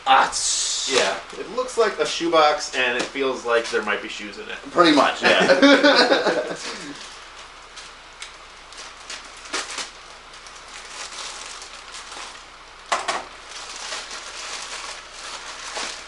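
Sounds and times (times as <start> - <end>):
cardboard packaging rustling: 5.9 - 16.0.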